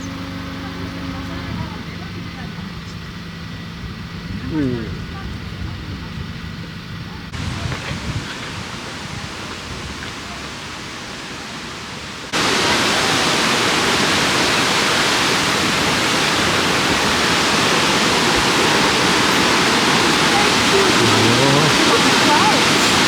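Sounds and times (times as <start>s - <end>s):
waterfall rushing: 7.3s - 23.0s.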